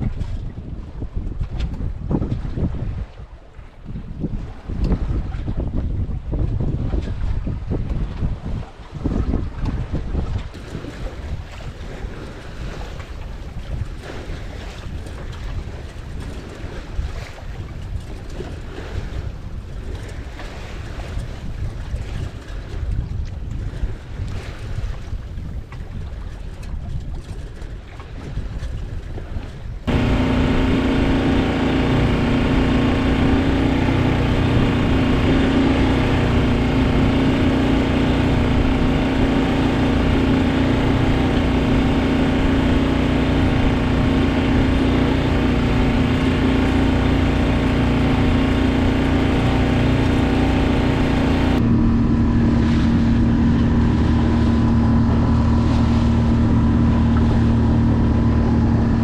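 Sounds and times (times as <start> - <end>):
wind buffeting microphone: 0.0 - 59.0
boat motor droning: 29.8 - 59.0.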